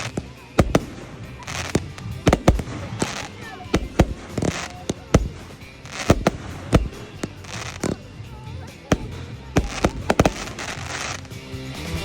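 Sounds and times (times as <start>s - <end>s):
fireworks bangs: 0.0s - 11.4s
fireworks crackling hiss: 0.0s - 12.0s.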